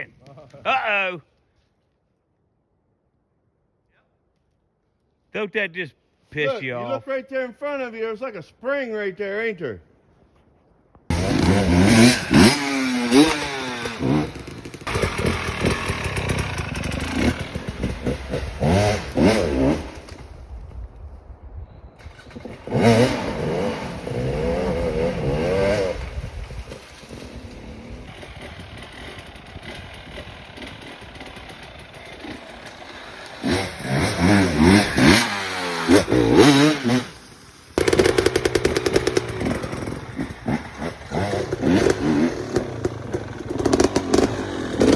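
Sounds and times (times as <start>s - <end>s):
dirt bike engine revving: 11.1s - 20.2s, 22.0s - 44.9s.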